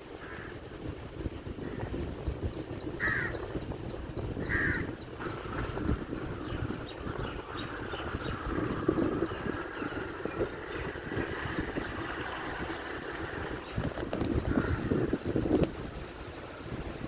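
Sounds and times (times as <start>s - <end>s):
crow cawing: 0.2s - 0.6s, 3.0s - 3.4s, 4.5s - 5.6s
small birds chirping: 2.2s - 15.1s.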